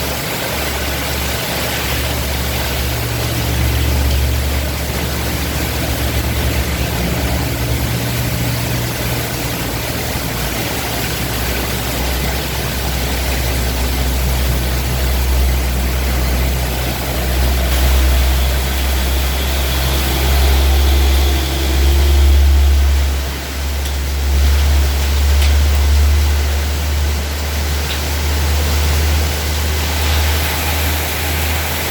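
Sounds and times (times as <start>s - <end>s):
heavy rain hissing: 0.0s - 31.9s.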